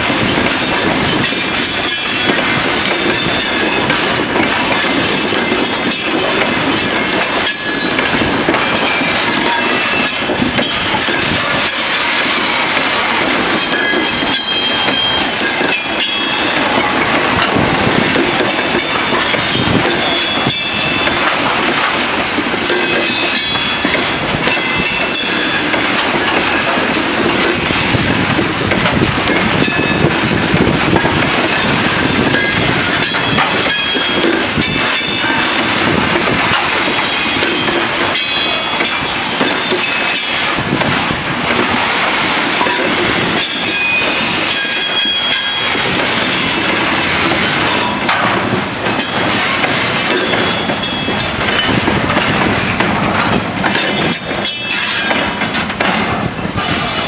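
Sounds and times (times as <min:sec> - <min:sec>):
train wheels rumbling on rail: 0:00.0 - 0:57.0
clicks over rail joints: 0:44.9 - 0:57.0.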